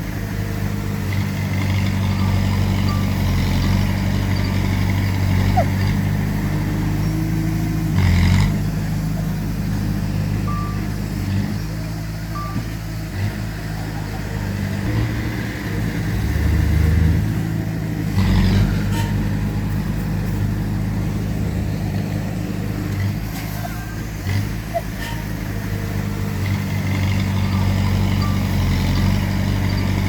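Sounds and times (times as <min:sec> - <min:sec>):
heavy machinery diesel engines: 0:00.0 - 0:30.0
short high beeps: 0:10.5 - 0:10.9, 0:12.3 - 0:12.7.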